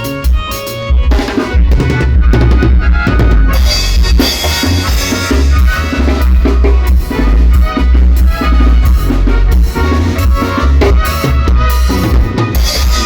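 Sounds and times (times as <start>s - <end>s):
band playing latin dance music: 0.0s - 13.0s
drum kit beat: 0.0s - 13.0s
heavy bass: 0.0s - 13.0s.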